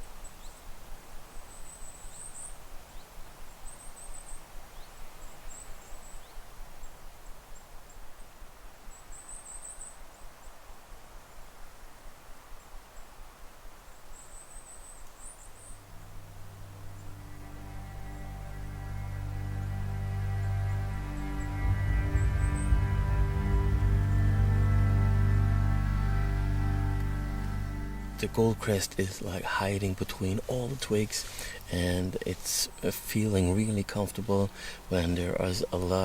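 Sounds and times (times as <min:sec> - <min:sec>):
forest hiss: 0:00.0 - 0:36.0
music: 0:16.0 - 0:29.6.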